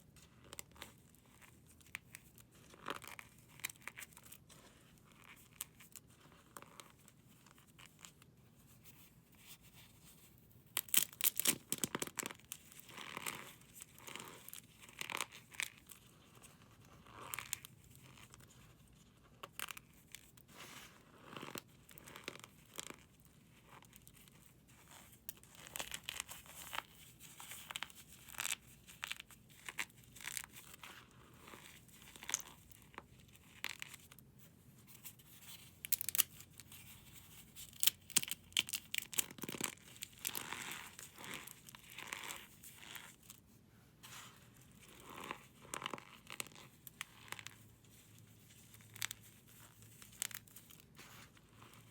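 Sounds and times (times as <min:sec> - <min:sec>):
brittle material crunching: 0:10.8 - 0:12.4, 0:35.5 - 0:42.5, 0:48.8 - 0:50.8.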